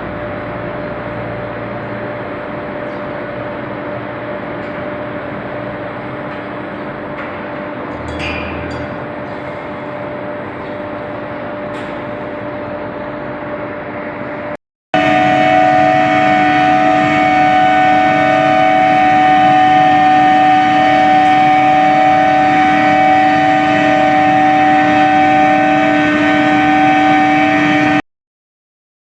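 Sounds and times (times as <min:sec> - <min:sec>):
induction furnace humming: 0:00.0 - 0:28.0.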